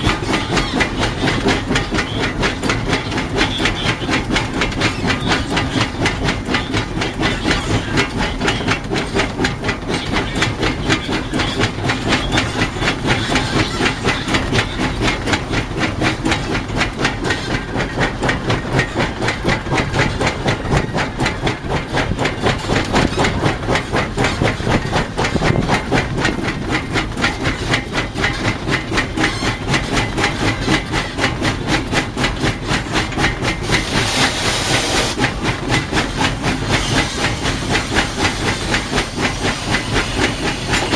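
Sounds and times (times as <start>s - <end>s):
steam locomotive exhaust chuffing: 0.0s - 40.9s
steam hissing: 33.5s - 40.9s.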